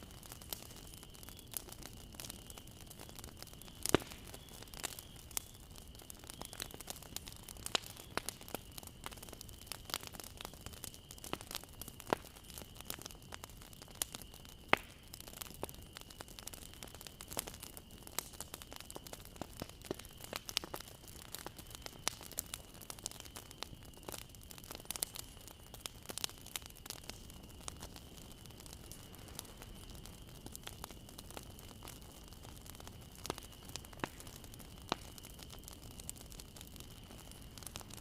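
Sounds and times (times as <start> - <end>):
bonfire crackling and popping: 0.0 - 38.0
low fire hiss: 0.0 - 38.0.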